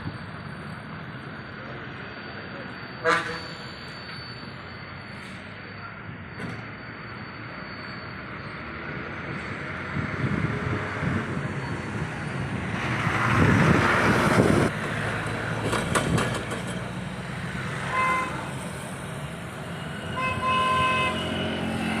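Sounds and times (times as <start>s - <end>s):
road traffic: 0.0s - 22.0s
vehicle horn tooting: 3.0s - 3.6s, 17.8s - 18.6s, 20.0s - 21.5s
vehicle passing loudly: 20.3s - 22.0s.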